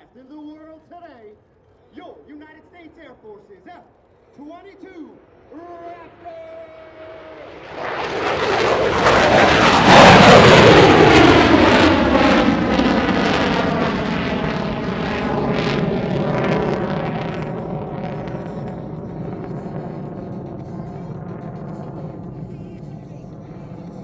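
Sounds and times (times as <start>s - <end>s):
fighter jet passing by: 5.1s - 24.0s.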